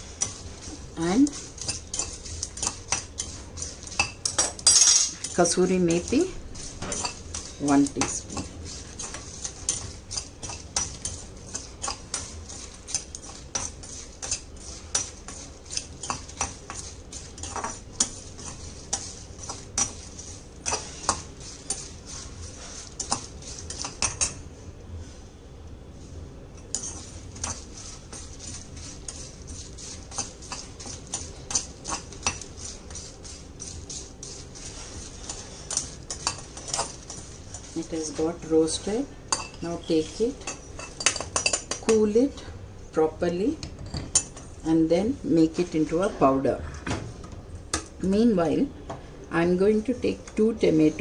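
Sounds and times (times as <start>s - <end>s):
spices rattling: 0.0s - 24.4s, 26.6s - 42.0s
spoon scraping pan: 0.0s - 24.5s, 26.6s - 42.5s, 43.1s - 46.4s.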